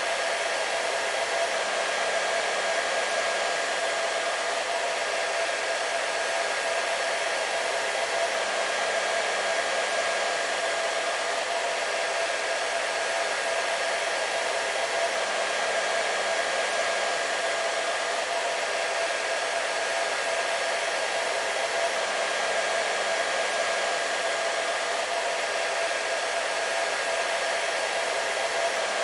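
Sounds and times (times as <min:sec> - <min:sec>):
hair dryer running: 0:00.0 - 0:29.0.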